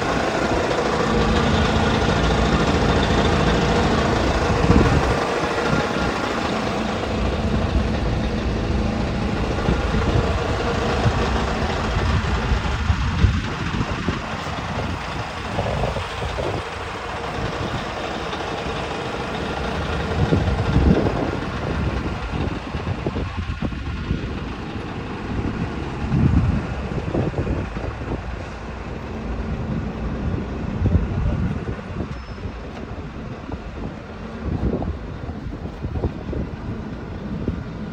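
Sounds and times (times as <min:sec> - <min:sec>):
truck diesel engine running: 0:00.0 - 0:37.9.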